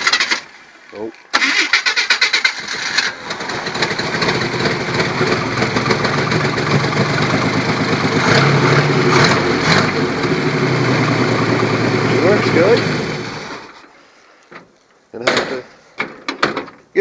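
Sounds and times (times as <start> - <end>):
tractor engine running: 1.4 - 13.8.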